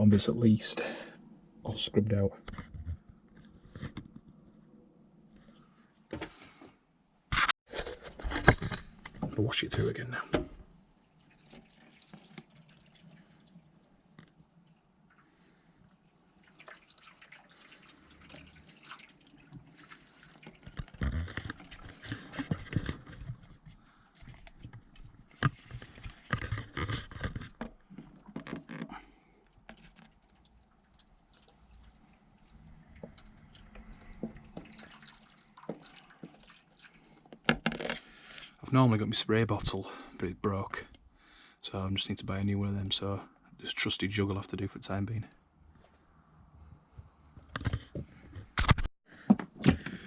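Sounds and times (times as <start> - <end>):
water splashing and trickling: 10.9 - 22.6, 27.1 - 37.5.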